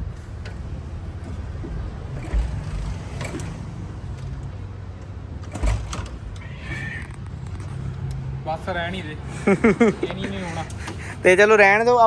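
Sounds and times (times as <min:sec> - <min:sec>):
steady low rumble: 0:00.0 - 0:10.0
motorcycle kick-start thump: 0:05.4 - 0:06.2.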